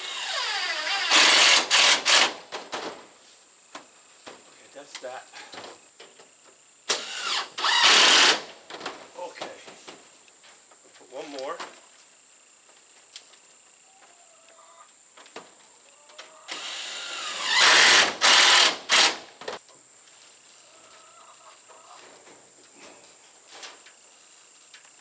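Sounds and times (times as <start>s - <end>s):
cordless drill driving a screw: 0.0s - 2.3s, 6.9s - 8.4s, 16.5s - 19.2s.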